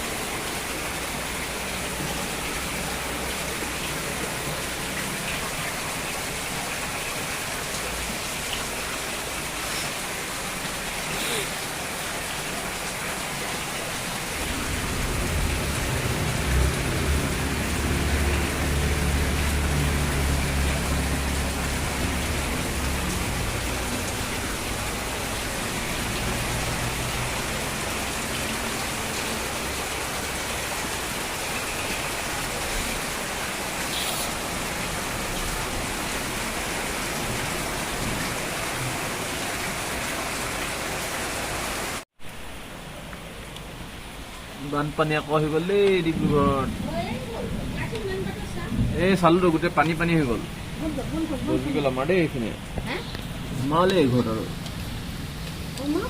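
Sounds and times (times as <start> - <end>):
steady rain falling: 0.0 - 56.0
low rumble: 14.4 - 21.0.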